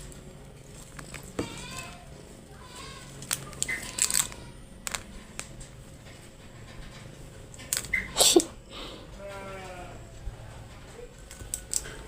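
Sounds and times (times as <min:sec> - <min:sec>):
crunchy clicks: 0:03.1 - 0:06.2, 0:11.2 - 0:12.0.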